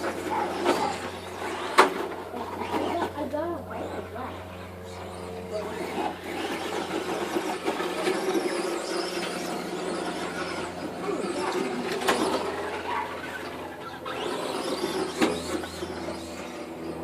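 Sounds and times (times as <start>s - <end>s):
toy car motors whining: 0.0s - 17.0s.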